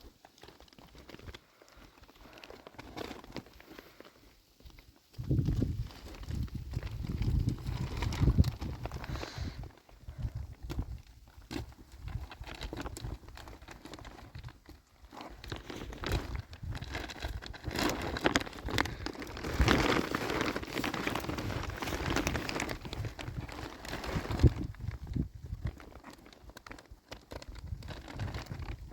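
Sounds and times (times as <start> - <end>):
plastic sheeting crinkling: 0.0 - 28.9.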